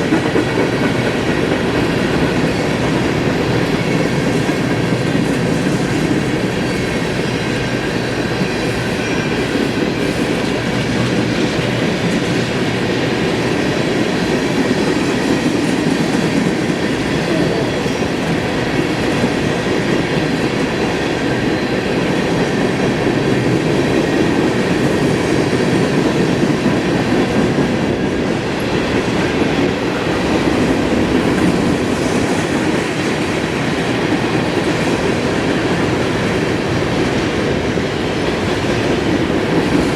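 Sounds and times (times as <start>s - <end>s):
freight train wheels on rail: 0.0s - 39.9s.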